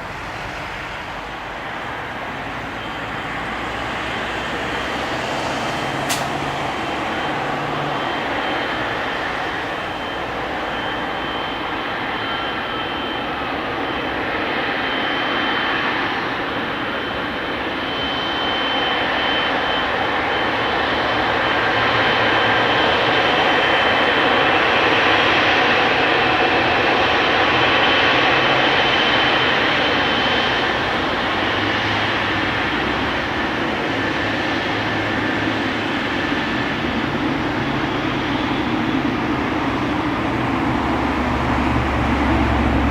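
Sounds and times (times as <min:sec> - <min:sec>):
jet engines rushing and whining: 0:00.0 - 0:42.9.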